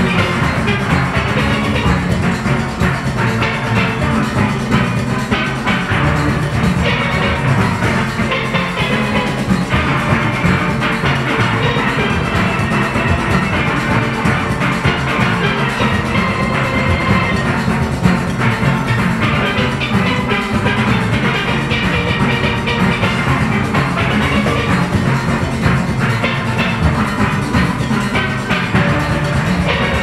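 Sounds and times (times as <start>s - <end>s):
drums and percussion: 0.0s - 30.0s
steel orchestra playing calypso: 0.0s - 30.0s.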